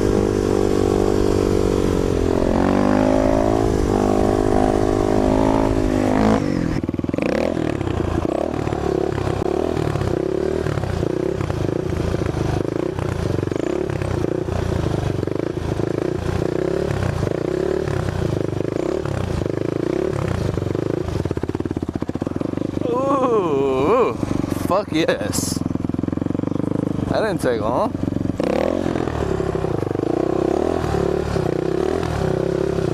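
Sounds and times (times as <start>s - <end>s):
dirt bike engine revving: 0.0s - 32.9s.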